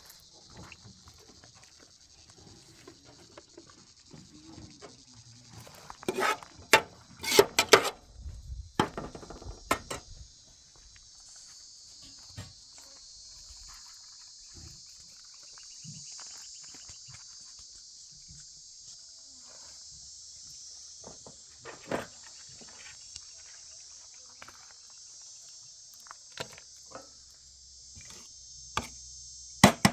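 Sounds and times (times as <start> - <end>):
sharp knocks and clatters: 6.0 - 8.0, 8.8 - 10.0
high-pitched insect chirring: 9.5 - 21.0.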